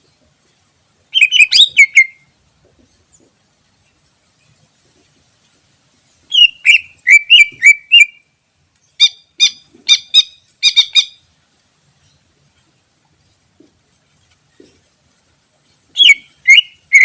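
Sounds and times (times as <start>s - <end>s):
bird singing whistled notes: 1.1s - 2.3s, 6.3s - 8.3s, 8.9s - 11.2s, 16.0s - 17.0s.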